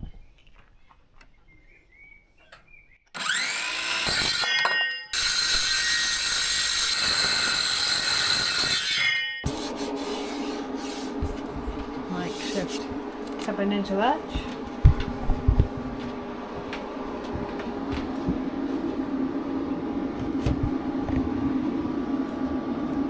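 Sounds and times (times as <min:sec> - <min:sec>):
power saw cutting wood: 0:03.1 - 0:11.2.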